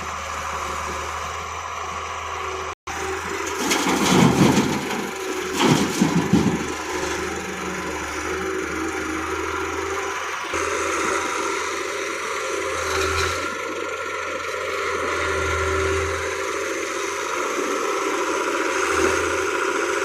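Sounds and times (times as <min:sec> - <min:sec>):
diesel engine humming: 0:00.0 - 0:20.0
rattling: 0:03.4 - 0:07.0.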